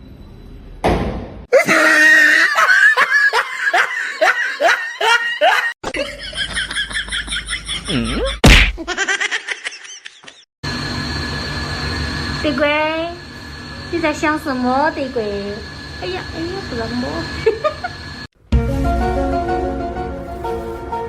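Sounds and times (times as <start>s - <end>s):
person laughing: 1.5s - 10.4s
sharp loud smack: 8.4s - 8.8s.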